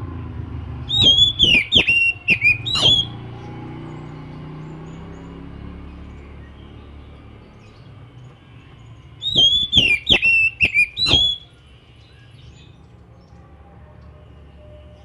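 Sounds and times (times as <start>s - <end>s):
bird singing sharp whistled notes: 0.9s - 3.4s, 9.2s - 12.8s.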